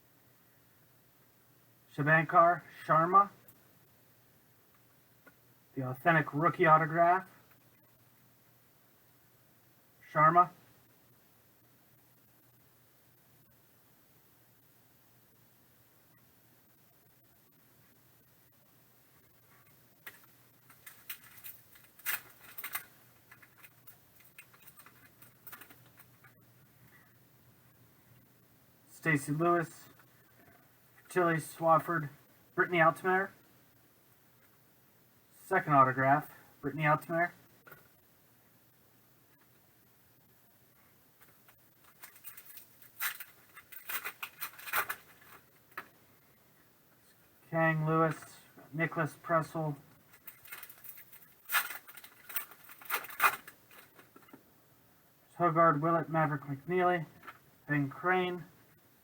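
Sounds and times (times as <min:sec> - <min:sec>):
trading cards clicking and rustling: 0:20.0 - 0:26.4, 0:41.2 - 0:45.9, 0:50.1 - 0:54.4.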